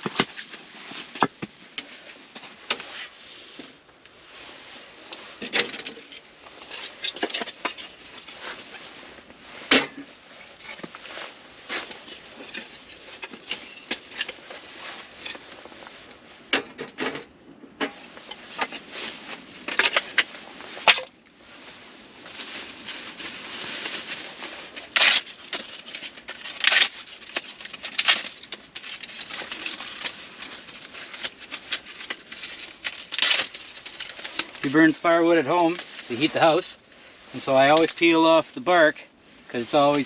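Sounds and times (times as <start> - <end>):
bark tearing and crackling: 22.9 - 34.6
wood snapping: 31.0 - 34.6.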